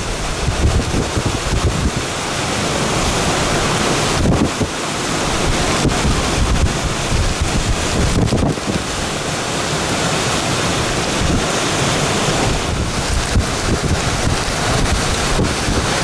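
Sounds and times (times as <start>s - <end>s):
storm wind buffeting microphone: 0.0s - 16.0s.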